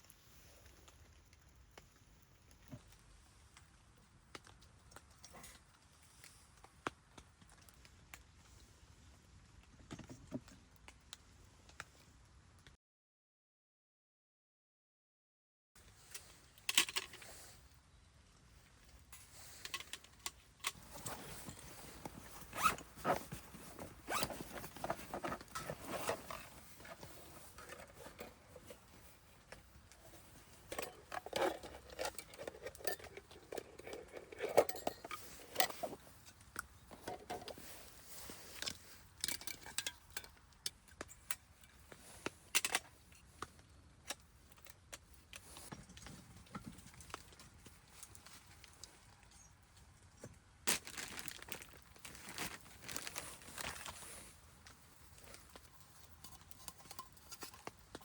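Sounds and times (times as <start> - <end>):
packaging rustling: 19.4 - 36.1, 50.7 - 54.3.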